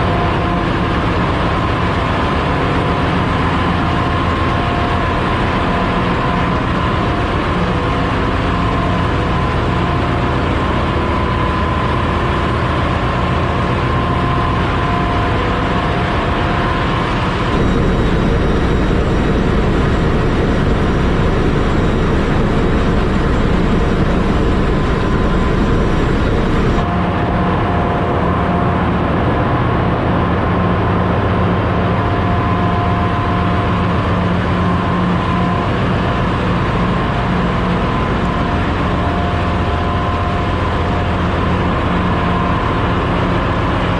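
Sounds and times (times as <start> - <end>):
engine room machinery din: 0.0 - 43.9
machinery whine: 0.0 - 43.9
low hum: 16.1 - 29.3.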